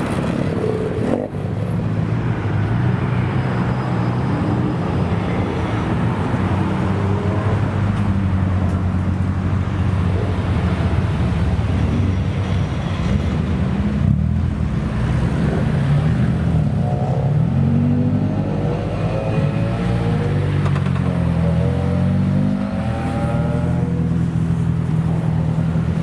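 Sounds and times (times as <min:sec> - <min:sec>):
car engines rumbling: 0:00.0 - 0:26.0
engine revving: 0:14.0 - 0:24.2.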